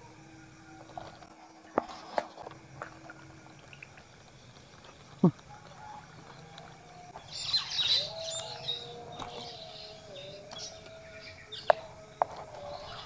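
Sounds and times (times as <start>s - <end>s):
high bird chirping: 3.5s - 13.0s
bird falling call: 4.8s - 13.0s.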